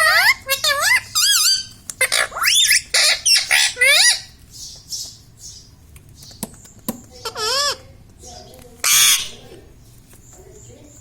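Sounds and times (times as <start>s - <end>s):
parakeet squawking: 0.0s - 5.7s, 7.1s - 9.7s.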